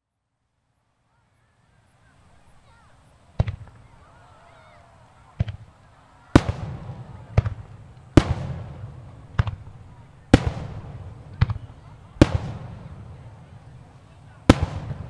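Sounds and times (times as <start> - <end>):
fireworks shells bursting: 3.2 - 15.0.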